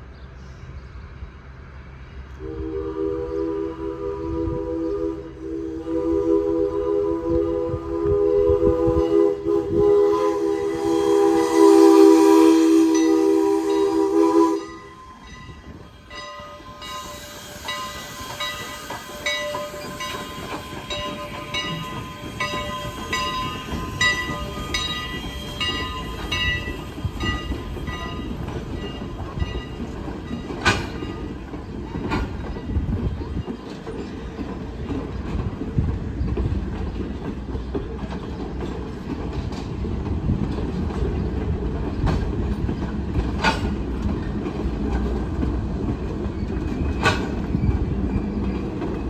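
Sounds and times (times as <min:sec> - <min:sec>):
train horn chord: 0:02.4 - 0:15.6
train wheels clicking over rail joints: 0:12.7 - 0:49.0.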